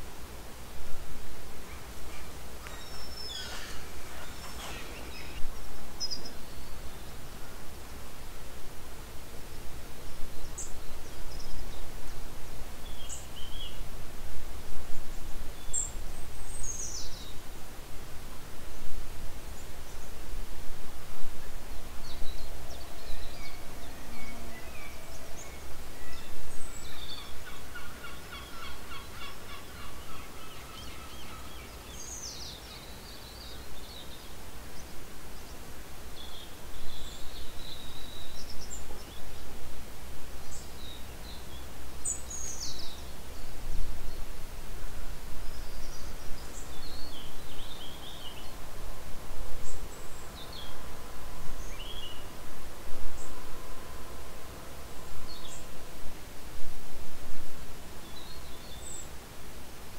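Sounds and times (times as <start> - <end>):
birds calling: 1.6 - 6.7, 22.4 - 32.9.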